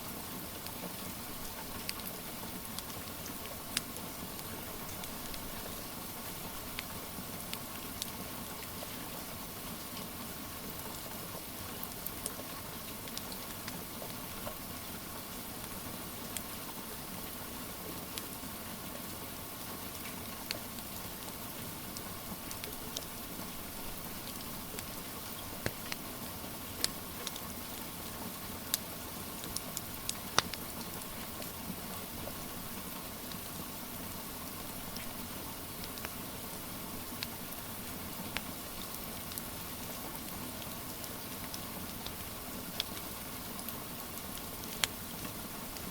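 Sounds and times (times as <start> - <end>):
rain hiss: 0.0 - 45.9
wood fire crackling and popping: 0.6 - 8.2, 21.9 - 26.1, 26.7 - 28.0, 28.6 - 32.4, 34.5 - 45.9.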